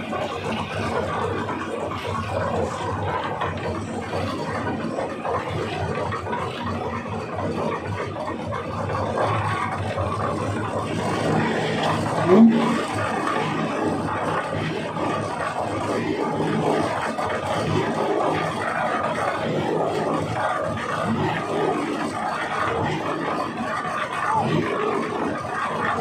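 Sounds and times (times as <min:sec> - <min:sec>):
tractor engine running: 0:00.0 - 0:18.1.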